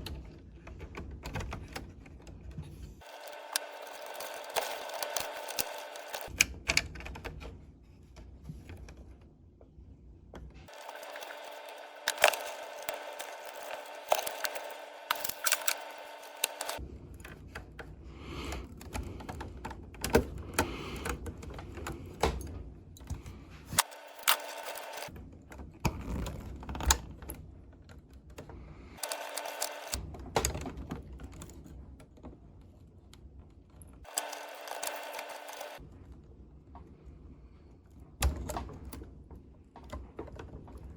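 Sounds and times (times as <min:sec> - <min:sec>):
steady hum: 0:10.7 - 0:17.0.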